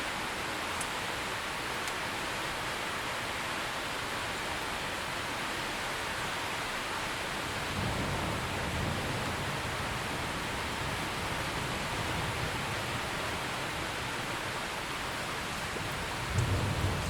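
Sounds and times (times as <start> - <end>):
heavy rainfall: 0.0 - 17.0
low rumble of thunder: 7.5 - 13.7, 15.6 - 17.0.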